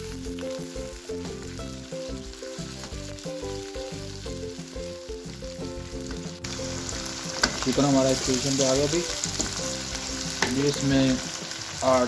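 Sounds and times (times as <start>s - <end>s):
background music: 0.0s - 12.0s
chicken sizzling in hot oil: 0.0s - 12.0s.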